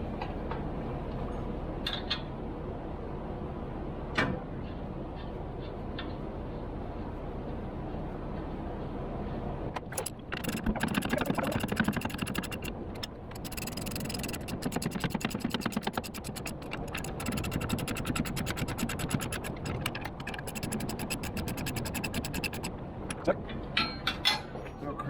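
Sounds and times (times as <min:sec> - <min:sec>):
metal scraping: 0:09.8 - 0:23.3
ratchet wrench clicking: 0:09.8 - 0:23.3.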